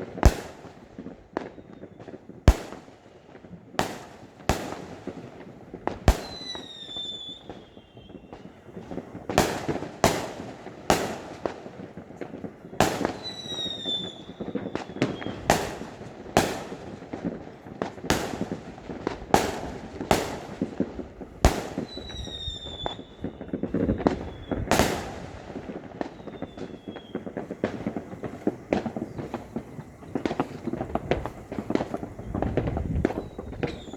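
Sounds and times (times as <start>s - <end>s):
distant firework rumble: 0.0s - 33.9s
fireworks sharp bangs: 0.0s - 33.9s
falling firework whistle: 1.4s - 2.9s, 5.9s - 17.0s, 21.4s - 33.9s.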